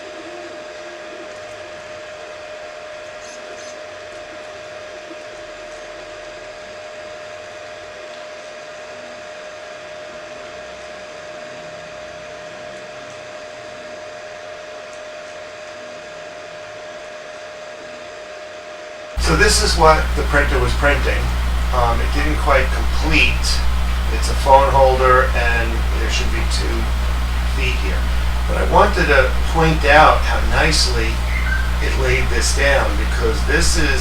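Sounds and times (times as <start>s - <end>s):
printer fans whirring: 19.2s - 34.0s.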